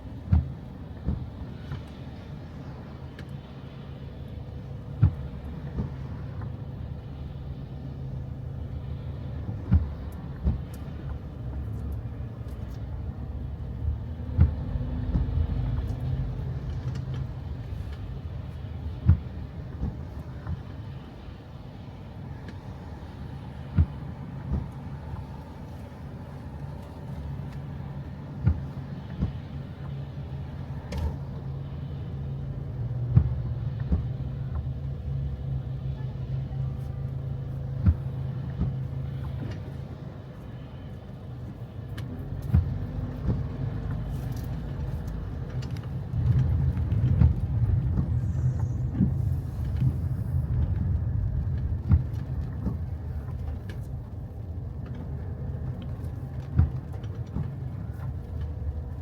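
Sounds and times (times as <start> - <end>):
car rumbling in motion: 0.0 - 59.0.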